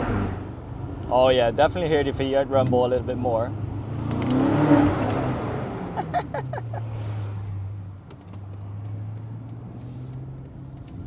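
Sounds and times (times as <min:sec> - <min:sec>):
car engine accelerating: 0:03.5 - 0:11.0.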